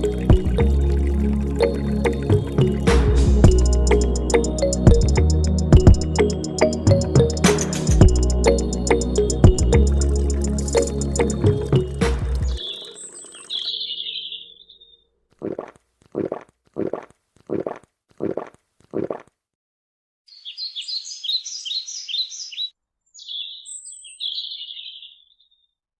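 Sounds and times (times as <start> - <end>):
birds chirping and singing: 8.4 - 15.0, 20.3 - 25.6.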